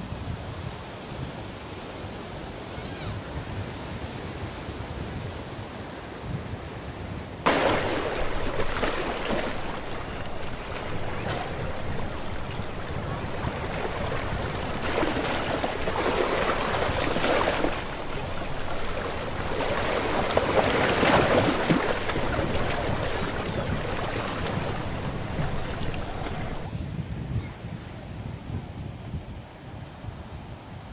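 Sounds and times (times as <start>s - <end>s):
ferry wake churning: 7.5s - 26.7s.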